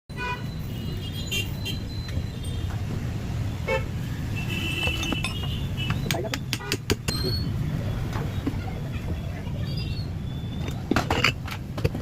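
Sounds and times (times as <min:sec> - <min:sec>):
road traffic rumble: 0:00.1 - 0:12.0
vehicle horn toots: 0:03.7 - 0:06.7.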